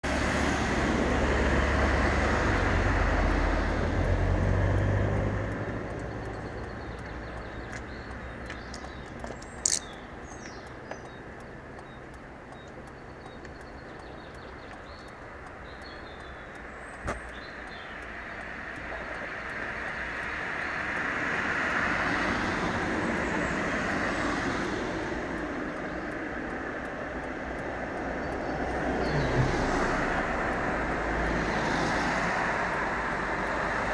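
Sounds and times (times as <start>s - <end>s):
vehicle driving on road: 0.0s - 33.9s
sharp clicks: 4.0s - 21.1s.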